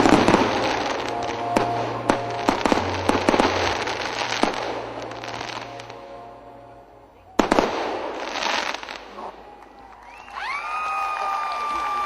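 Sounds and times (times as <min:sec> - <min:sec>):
fireworks bangs and crackling: 0:00.0 - 0:06.0, 0:07.4 - 0:09.6.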